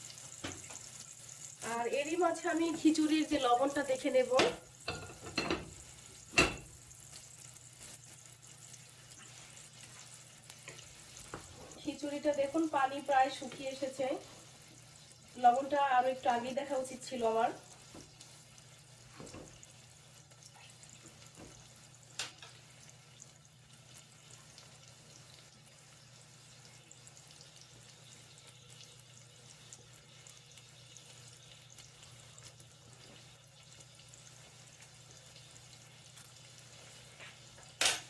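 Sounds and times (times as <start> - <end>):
food sizzling in pots: 0.0 - 38.0.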